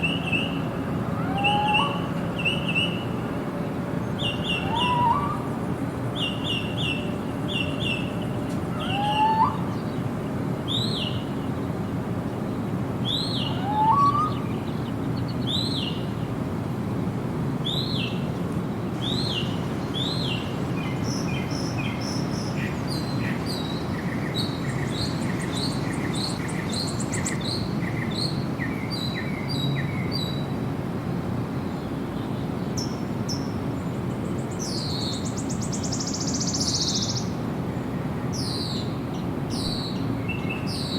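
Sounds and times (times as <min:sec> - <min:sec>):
bird rising whistles: 0:04.5 - 0:05.5, 0:08.8 - 0:09.7, 0:13.1 - 0:14.5
birds chirping: 0:12.4 - 0:16.2.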